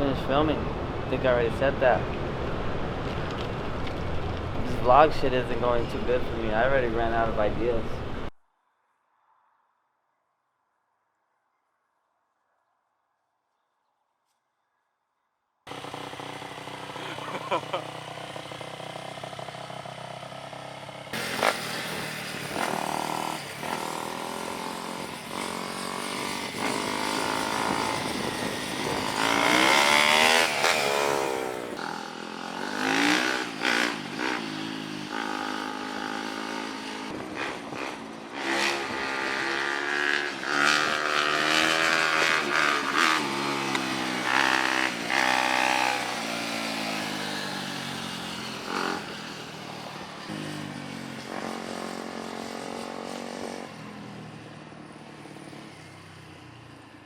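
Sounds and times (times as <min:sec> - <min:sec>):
off-road engines revving: 0:00.0 - 0:08.3, 0:15.7 - 0:53.7.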